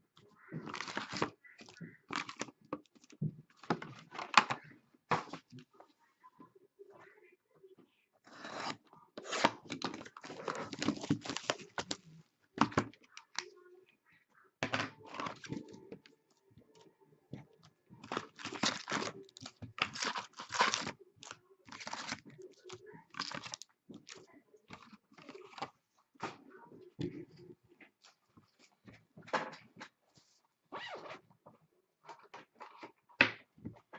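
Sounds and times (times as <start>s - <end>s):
card wrapper ripping and crinkling: 0.7s - 1.3s, 2.1s - 3.1s, 8.4s - 12.0s, 18.0s - 25.7s.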